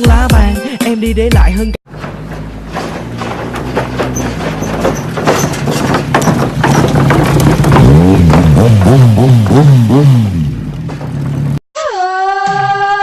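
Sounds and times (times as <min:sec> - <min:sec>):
motorcycle engine revving: 0:01.9 - 0:11.6
sharp clicks and knocks: 0:01.9 - 0:11.6.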